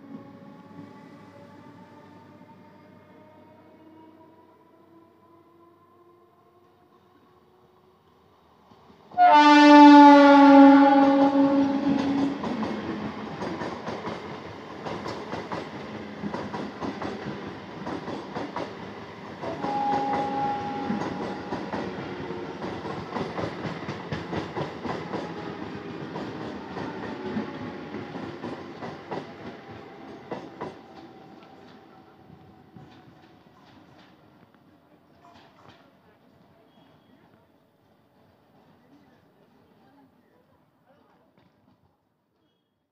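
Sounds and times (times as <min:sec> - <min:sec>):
train horn: 0:09.1 - 0:12.5, 0:19.4 - 0:21.8.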